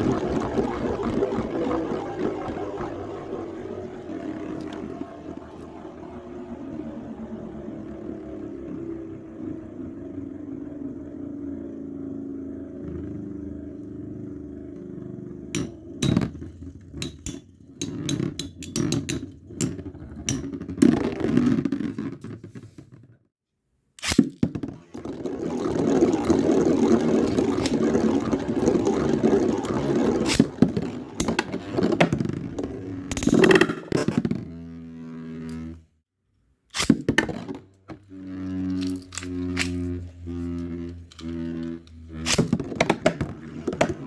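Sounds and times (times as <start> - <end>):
spinning tops whirring: 0.0 - 10.1, 24.7 - 35.8, 36.8 - 44.0.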